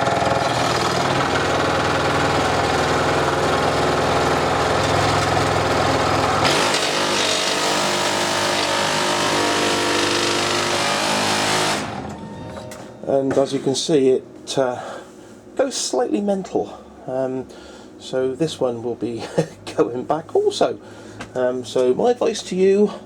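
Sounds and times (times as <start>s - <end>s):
scroll saw running: 0.0s - 12.2s.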